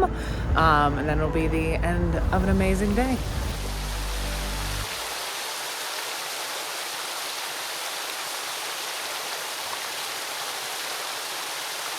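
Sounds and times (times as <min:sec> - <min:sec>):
rushing water hiss: 0:02.9 - 0:11.9.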